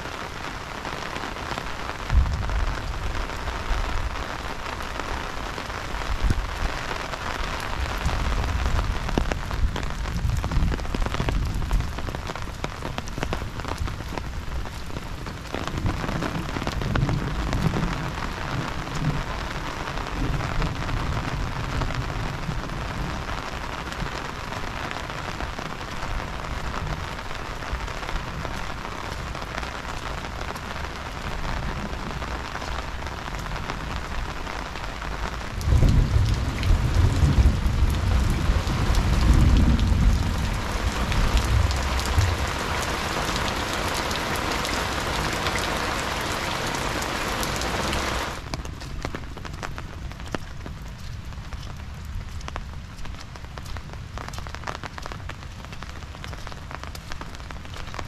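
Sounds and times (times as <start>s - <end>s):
heavy rain pouring: 0.0s - 58.0s
deep low rumble: 35.6s - 43.7s.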